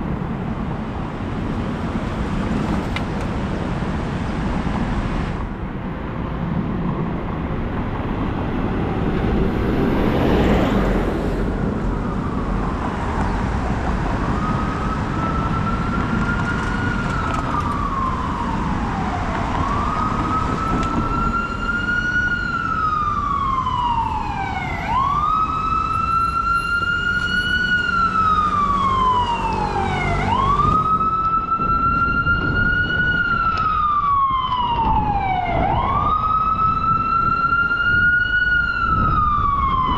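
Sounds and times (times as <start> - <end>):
street traffic noise: 0.0 - 39.9
siren wailing: 8.5 - 39.9.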